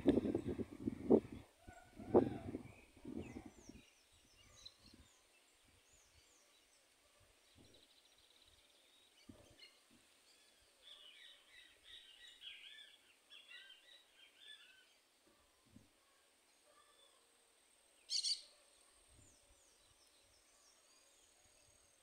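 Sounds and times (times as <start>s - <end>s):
small birds chirping: 0.0s - 17.3s, 18.0s - 22.0s
bird trill: 18.1s - 18.5s.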